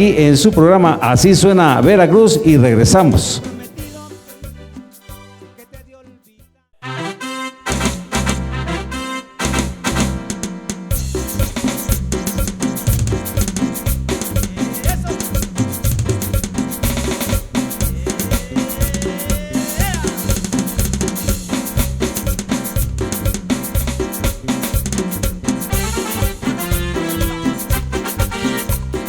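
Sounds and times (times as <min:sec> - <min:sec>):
drum kit beat: 0:00.0 - 0:06.5, 0:07.7 - 0:29.0
keyboard: 0:00.0 - 0:29.0
electric bass: 0:07.7 - 0:10.2, 0:11.0 - 0:19.1, 0:19.8 - 0:29.0.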